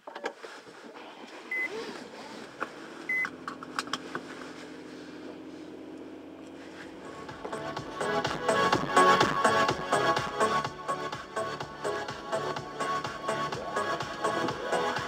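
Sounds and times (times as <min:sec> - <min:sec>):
car engine starting and idling: 0:00.1 - 0:15.0
short electronic beeps: 0:01.5 - 0:01.7, 0:03.1 - 0:03.3
clicks: 0:02.5 - 0:04.4.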